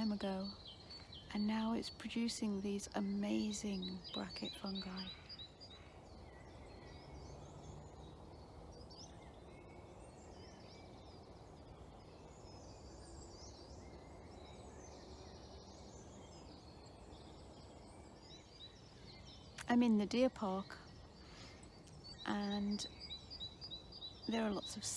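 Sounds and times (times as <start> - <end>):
distant bird calls: 0.0 - 24.9.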